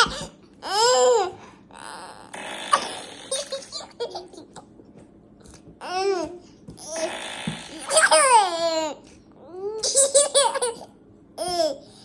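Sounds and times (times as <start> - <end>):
baby laughing and squealing: 0.0 - 4.6, 7.7 - 9.1, 9.7 - 11.8.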